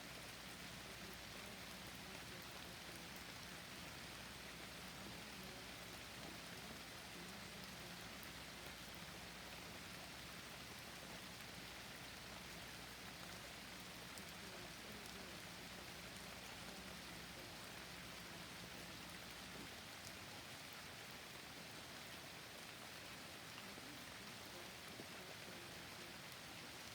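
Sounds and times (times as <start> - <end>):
rain falling in a forest: 0.0 - 26.9.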